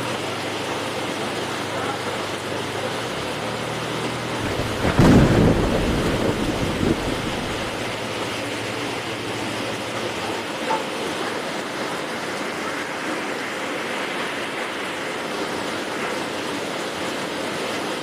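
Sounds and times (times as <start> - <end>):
heavy rain: 0.0 - 18.0
thunder rumble: 4.4 - 8.2.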